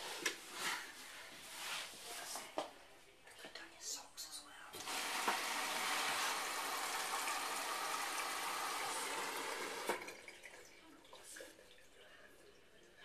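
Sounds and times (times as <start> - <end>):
washing machine filling with water: 4.8 - 13.0.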